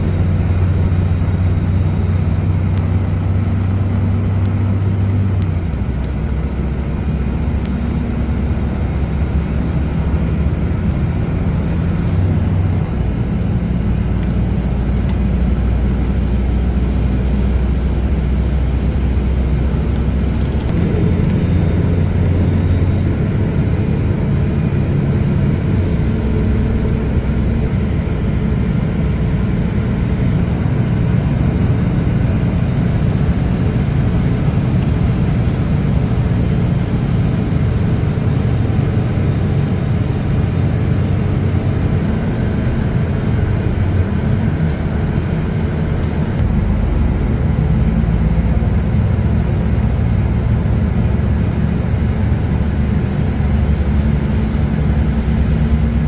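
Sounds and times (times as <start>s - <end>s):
train rumbling: 0.0s - 56.0s
low humming tones: 18.0s - 56.0s.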